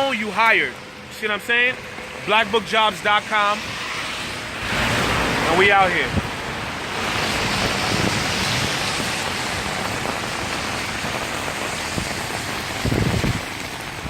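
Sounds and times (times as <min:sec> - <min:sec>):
rain hissing: 0:00.0 - 0:14.0.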